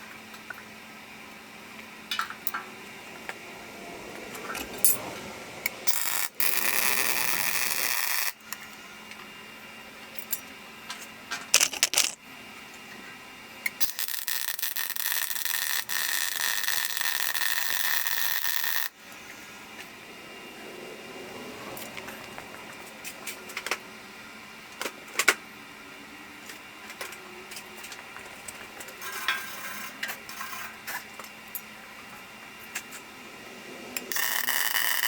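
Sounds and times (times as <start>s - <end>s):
welding arc crackling: 5.8s - 8.4s, 13.8s - 19.0s, 34.1s - 35.0s.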